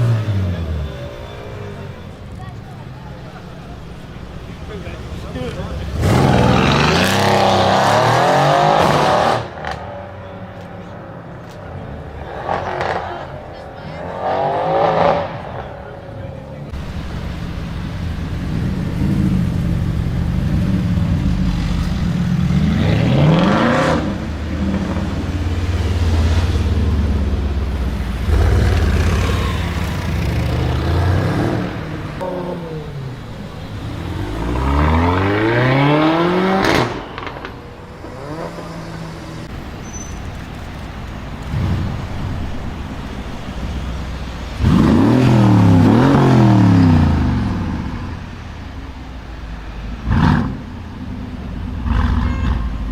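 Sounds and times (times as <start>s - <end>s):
loud car exhaust revving: 5.6s - 9.8s, 16.7s - 39.5s, 41.5s - 48.4s, 50.0s - 52.9s.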